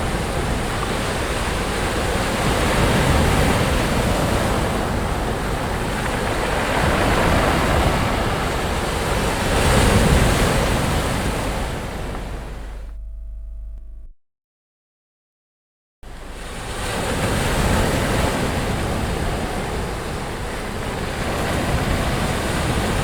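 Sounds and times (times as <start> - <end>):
sea waves washing onto a beach: 0.0 - 12.8, 16.1 - 23.0
low hum: 11.8 - 14.2, 16.0 - 18.1.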